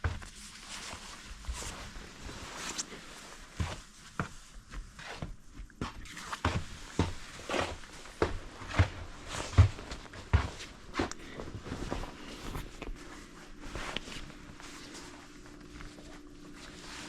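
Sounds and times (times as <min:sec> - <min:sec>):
footsteps thumping and scuffing: 0:03.6 - 0:14.3.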